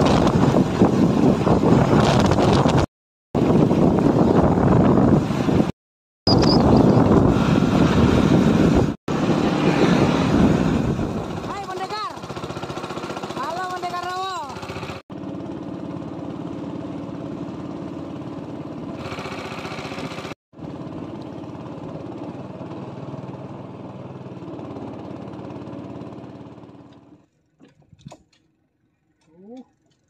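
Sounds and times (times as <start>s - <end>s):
motorboat engine running: 6.3s - 30.0s.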